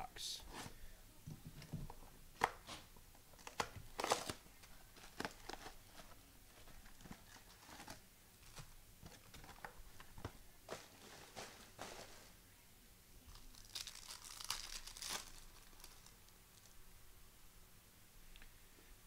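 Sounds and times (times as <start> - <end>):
foil wrappers tearing and crinkling: 3.4 - 4.4, 13.3 - 16.8.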